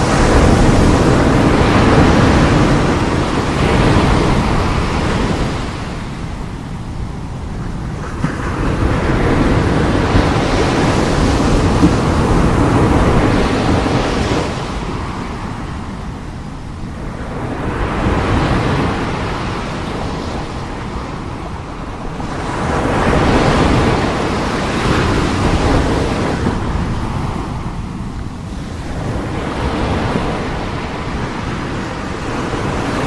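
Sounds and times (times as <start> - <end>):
sea waves breaking: 0.0 - 33.0.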